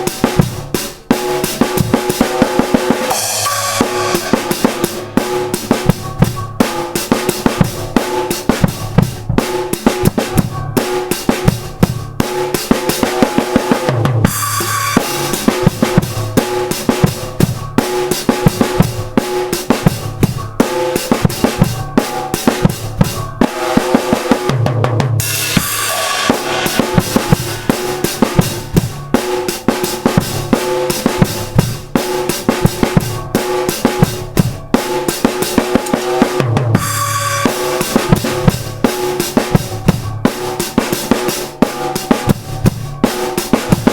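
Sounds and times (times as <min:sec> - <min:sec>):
drum kit playing: 0:00.0 - 0:43.9
cymbal crashes: 0:03.0 - 0:09.0, 0:14.3 - 0:17.6, 0:25.2 - 0:29.5, 0:36.8 - 0:40.6.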